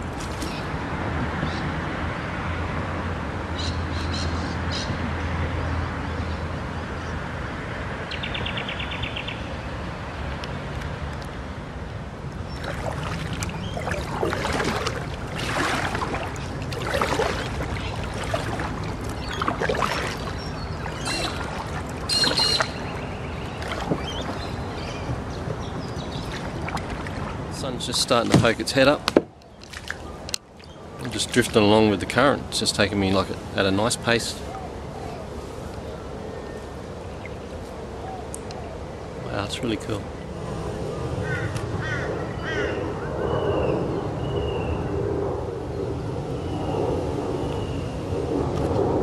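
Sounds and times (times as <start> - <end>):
steady background hum: 11.7 - 43.2
birds calling and chirping: 12.4 - 44.8
bird trill: 19.2 - 26.3.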